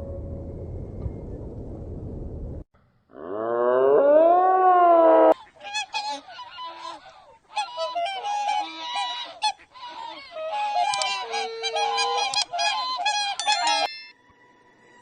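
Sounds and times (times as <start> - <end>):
animal call rising in pitch: 3.1 - 5.4
flock of birds calling: 5.4 - 13.9.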